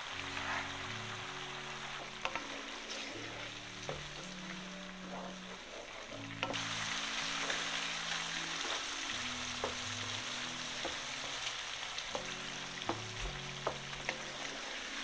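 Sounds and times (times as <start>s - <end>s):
food sizzling in a frying pan: 0.0s - 15.0s
wooden spoon scraping a pan: 0.2s - 1.0s, 2.1s - 4.4s, 5.0s - 6.6s.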